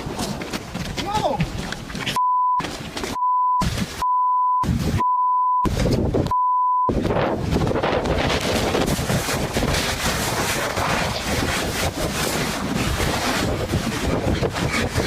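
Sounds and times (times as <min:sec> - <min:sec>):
strong wind buffeting microphone: 0:04.6 - 0:05.0, 0:05.6 - 0:15.0.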